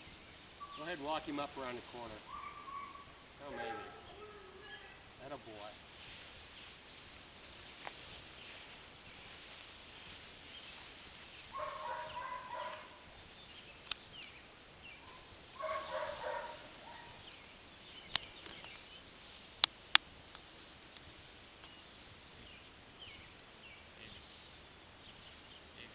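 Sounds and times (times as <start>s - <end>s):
bird call: 0.6s - 1.0s
sharp clicks: 13.8s - 14.0s.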